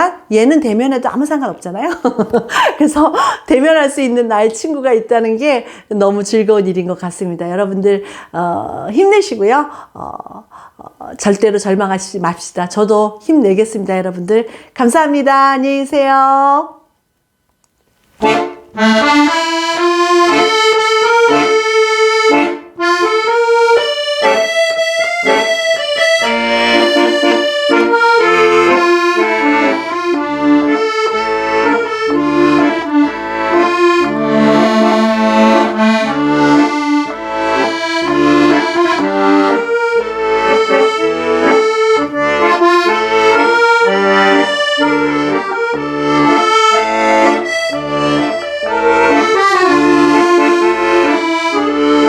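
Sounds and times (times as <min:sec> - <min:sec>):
accordion music: 0:18.0 - 0:52.0.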